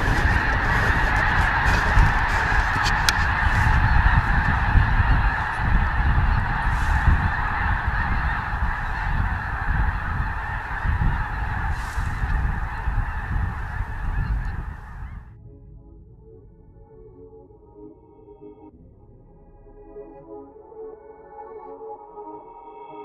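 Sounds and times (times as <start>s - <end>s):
flock of geese honking: 0.0s - 15.3s.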